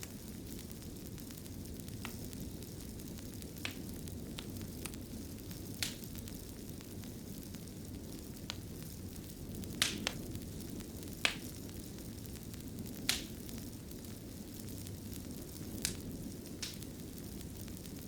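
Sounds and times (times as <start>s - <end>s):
fire crackles and pops: 0.0s - 18.0s
wood fire burning: 0.0s - 18.0s.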